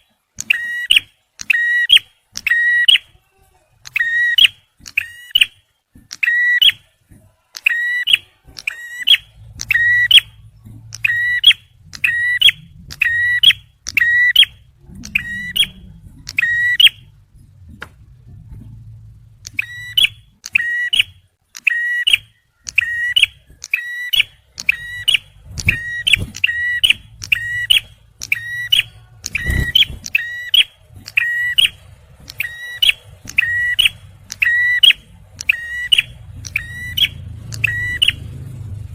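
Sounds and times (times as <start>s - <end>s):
faint low hum: 0.0s - 38.9s
bird ringing call: 7.6s - 17.1s, 19.5s - 38.2s.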